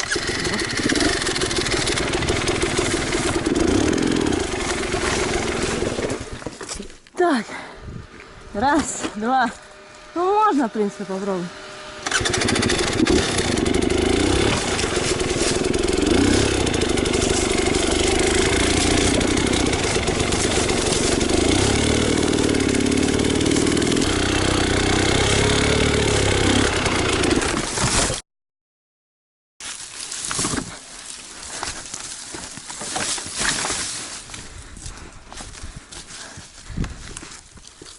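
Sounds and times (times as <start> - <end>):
motorcycle engine revving hard: 0.0 - 6.5, 11.5 - 28.0.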